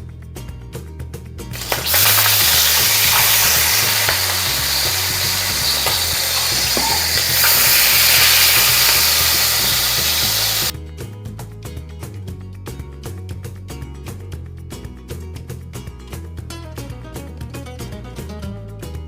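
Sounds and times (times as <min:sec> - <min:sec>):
chicken sizzling in a pan: 0:01.6 - 0:10.7.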